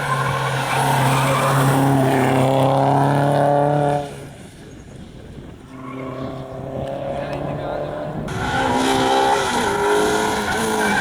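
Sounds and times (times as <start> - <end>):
rally car engine at high revs: 0.0 - 4.3, 5.7 - 11.0
second rally car engine building: 5.7 - 11.0.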